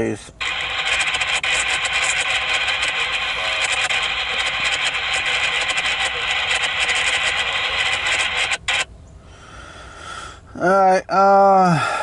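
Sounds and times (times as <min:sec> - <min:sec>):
radio static hissing: 0:00.0 - 0:08.9.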